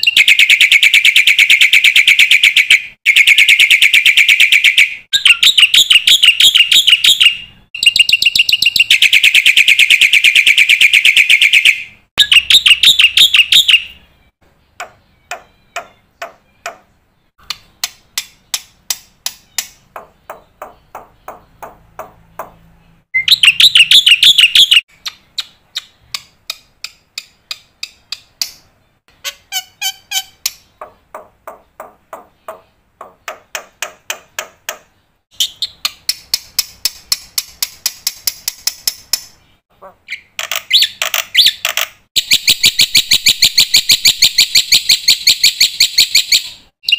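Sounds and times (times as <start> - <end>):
bird clicking notes: 25.0 - 28.7.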